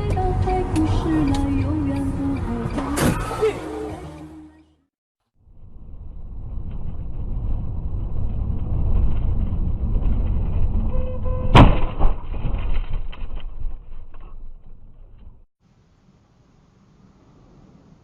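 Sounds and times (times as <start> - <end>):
car road rumble: 0.0 - 4.8, 5.4 - 15.5
loud collision impact: 11.5 - 12.7.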